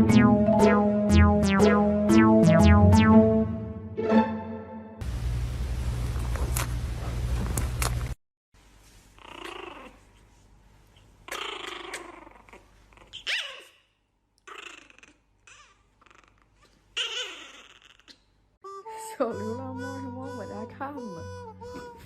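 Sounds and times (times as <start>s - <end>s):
pet animal growling and crying: 9.2s - 10.2s, 11.3s - 13.8s, 14.4s - 18.3s.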